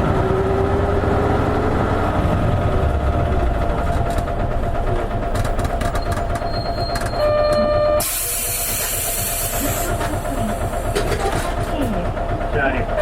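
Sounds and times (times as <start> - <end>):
bus diesel engine rumbling: 0.0 - 13.0
compressed air hiss: 8.0 - 10.0.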